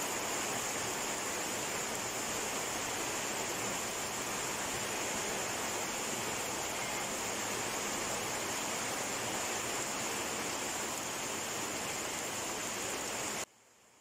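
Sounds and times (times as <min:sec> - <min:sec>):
rain falling steadily: 0:00.0 - 0:14.0.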